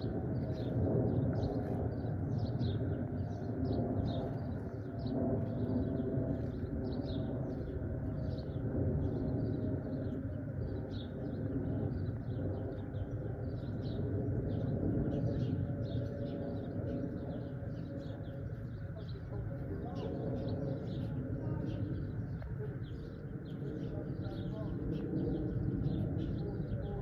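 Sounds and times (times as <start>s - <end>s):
birds chirping: 0.0s - 27.0s
steady low rumble: 0.0s - 27.0s.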